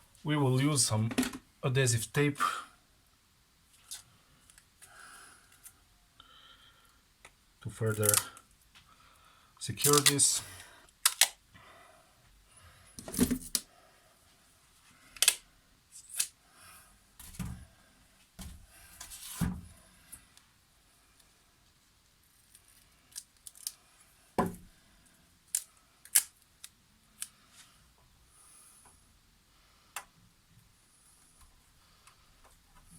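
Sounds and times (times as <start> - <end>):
adhesive tape pulled from roll: 15.2 - 16.4, 25.5 - 27.3.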